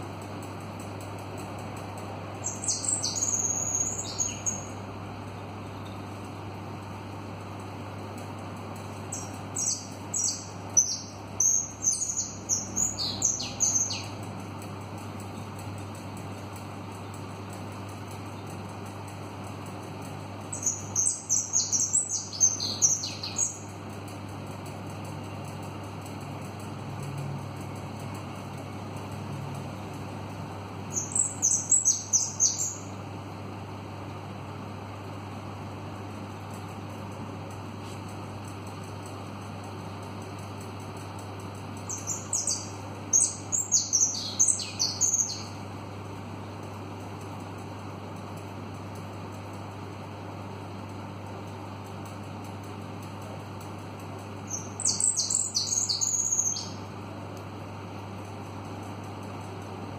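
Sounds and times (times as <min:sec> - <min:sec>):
small bird chirping: 0:02.3 - 0:04.8, 0:08.2 - 0:18.7, 0:19.3 - 0:24.2, 0:30.9 - 0:33.0, 0:37.8 - 0:45.9, 0:54.3 - 0:57.0.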